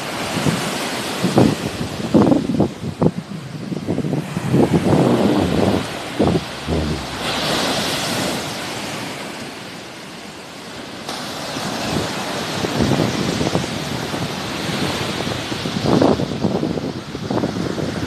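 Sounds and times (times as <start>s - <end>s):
sea waves washing on shore: 0.0s - 18.0s
wind buffeting microphone: 0.3s - 8.8s.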